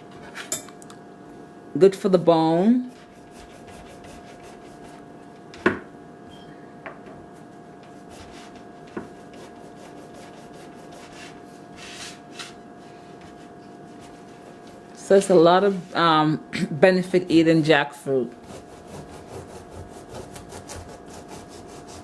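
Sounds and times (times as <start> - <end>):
rubbing and scraping of fruit: 7.4 - 14.9.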